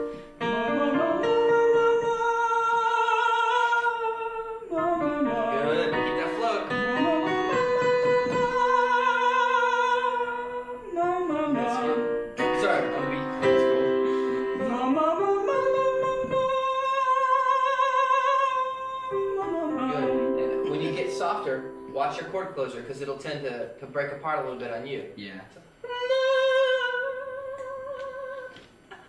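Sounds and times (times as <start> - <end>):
sustained instrumental accompaniment: 4.8 - 9.2, 11.4 - 16.6, 19.2 - 23.1.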